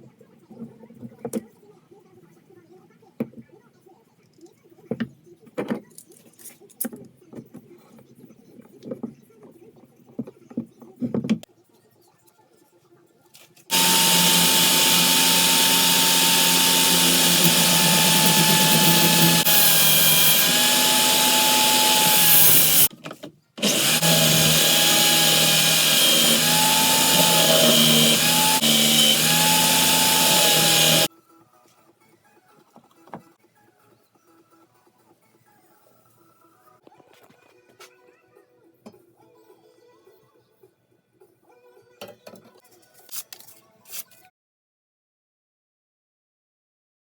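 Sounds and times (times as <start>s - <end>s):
electric power tool whining: 13.7s - 22.9s, 23.6s - 31.1s.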